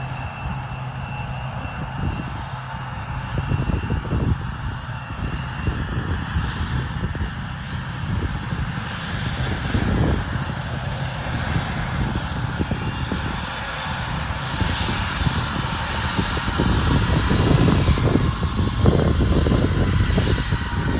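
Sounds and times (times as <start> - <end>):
airliner engine roar: 0.0 - 20.9.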